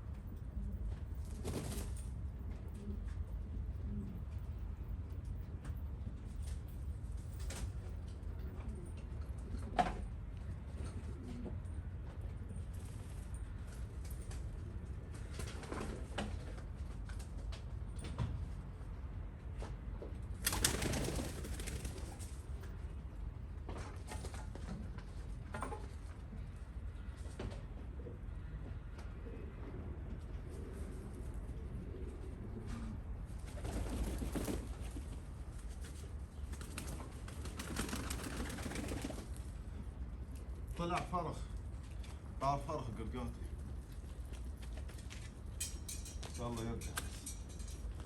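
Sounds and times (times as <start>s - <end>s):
wings flapping: 1.2s - 2.0s, 20.4s - 22.4s, 33.4s - 39.5s
pigeons cooing: 28.1s - 34.4s.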